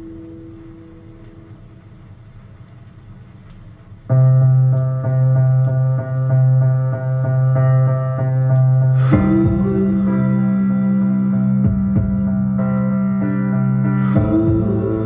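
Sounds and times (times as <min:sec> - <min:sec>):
instrumental keyboard music: 0:04.1 - 0:15.0.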